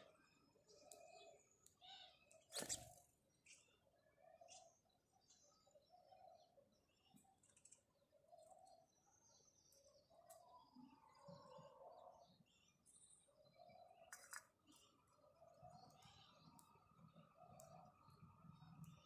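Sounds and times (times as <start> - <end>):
sparrows chirping: 0.0 - 19.0.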